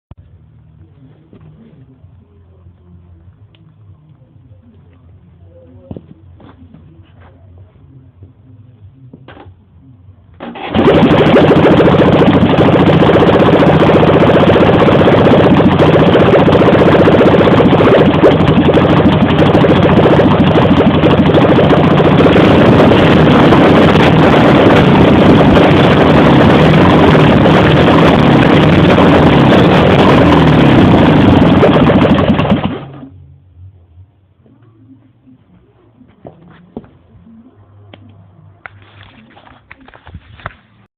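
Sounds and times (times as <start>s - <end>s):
motorcycle engine running: 10.5s - 33.2s.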